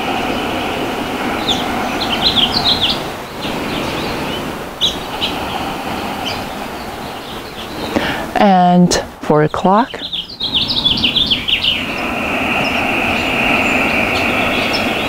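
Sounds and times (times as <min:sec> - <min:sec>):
small birds chirping: 0:00.0 - 0:08.8, 0:09.5 - 0:15.0
outdoor background noise: 0:00.0 - 0:15.0.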